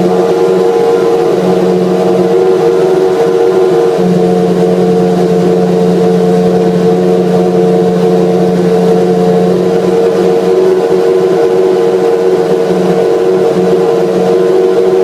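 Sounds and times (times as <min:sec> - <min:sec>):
racing car engine running steadily: 0:00.0 - 0:15.0.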